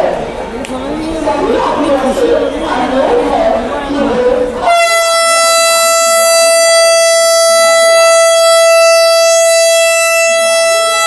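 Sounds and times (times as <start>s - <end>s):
train air horn: 4.6s - 11.0s.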